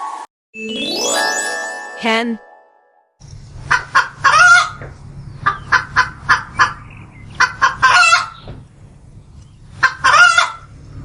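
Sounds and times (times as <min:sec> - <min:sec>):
hen clucking: 0:05.4 - 0:08.4, 0:09.8 - 0:10.7
hen drawn-out calls: 0:09.8 - 0:10.6.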